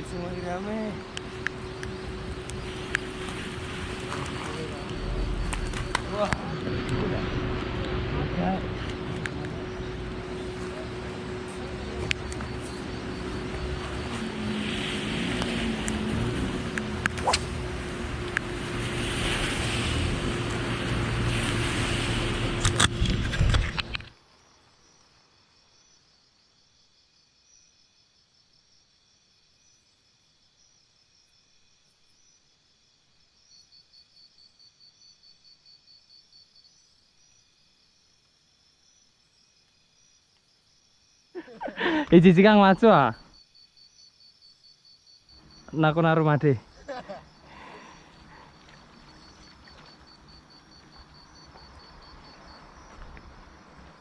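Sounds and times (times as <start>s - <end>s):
high pulsing chirp: 0.0s - 19.0s
surf at shoreline: 0.0s - 24.0s, 41.4s - 43.2s, 45.5s - 54.0s
insects chirping in trills: 0.0s - 54.0s
wind: 0.0s - 54.0s.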